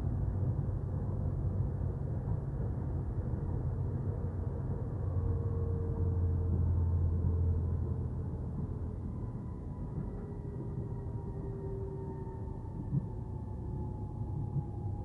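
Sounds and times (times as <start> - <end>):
train carriage hum and rumble: 0.0 - 15.0.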